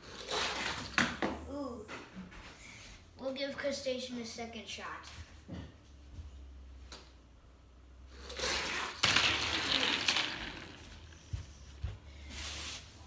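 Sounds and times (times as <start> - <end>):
toy car rolling on track: 0.1 - 1.0, 8.2 - 11.2
toy car clacking on landing: 8.3 - 11.1.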